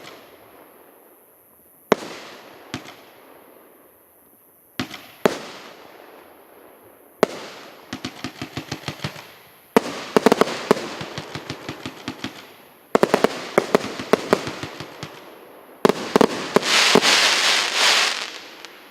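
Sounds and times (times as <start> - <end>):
firework pops and crackle: 1.9 - 3.2, 4.8 - 5.6, 7.2 - 15.2, 15.9 - 18.9.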